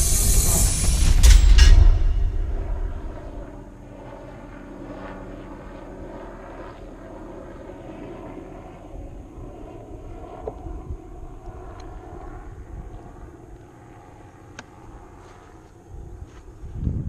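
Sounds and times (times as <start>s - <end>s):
electric motor whine: 0.0s - 3.4s.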